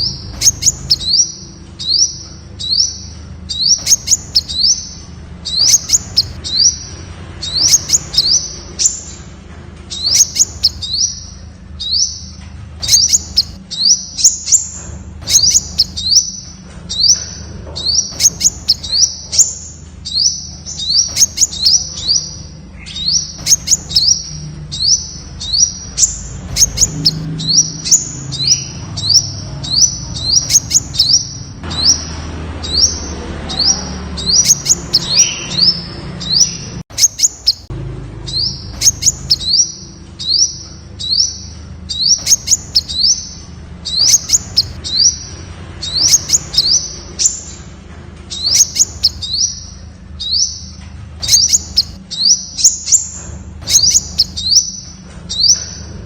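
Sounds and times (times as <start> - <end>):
bird calling sharp high notes: 0.0 - 9.1, 15.3 - 16.4, 38.3 - 39.8.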